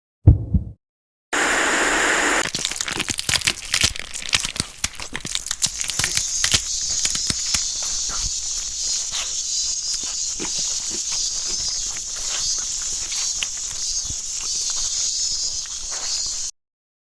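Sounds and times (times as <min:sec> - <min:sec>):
high-pitched buzz: 0:01.4 - 0:02.4
noisy rush: 0:01.4 - 0:02.4
sharp cracks and crackles: 0:01.4 - 0:09.3.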